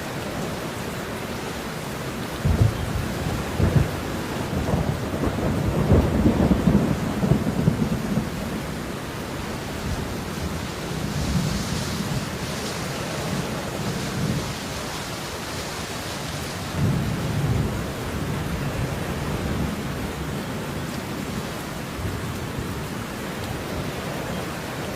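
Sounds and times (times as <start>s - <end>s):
rain falling: 0.0s - 24.9s
rolling thunder: 2.4s - 9.0s, 16.6s - 20.3s.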